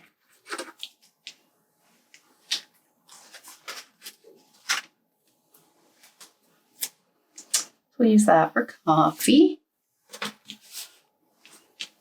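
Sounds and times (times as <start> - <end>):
paper sheets rustling: 0.0 - 1.4, 2.3 - 5.0, 5.9 - 7.7, 10.1 - 12.0.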